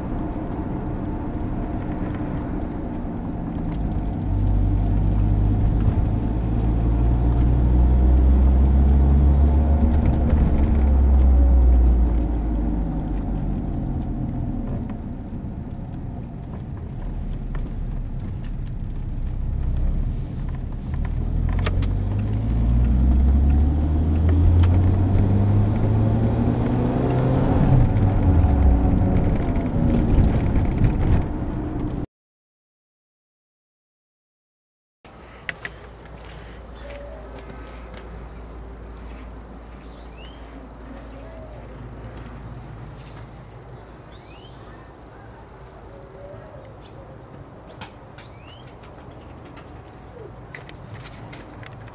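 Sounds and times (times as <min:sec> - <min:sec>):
wheel bearing droning rumble: 0:00.0 - 0:32.0.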